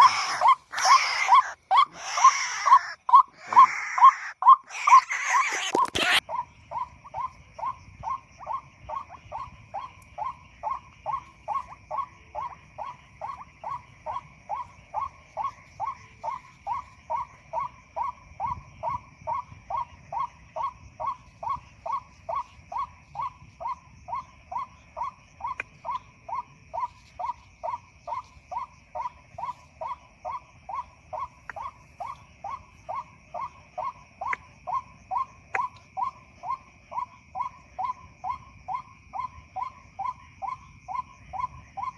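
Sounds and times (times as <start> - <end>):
waterhen call: 0.0 - 6.9
night insects chorus: 0.0 - 41.9.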